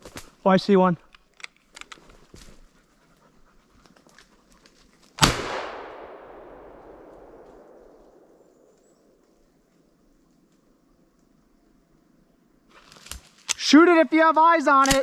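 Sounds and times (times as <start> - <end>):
dog panting: 2.6 - 4.7
shotgun blast echoing: 5.2 - 8.8.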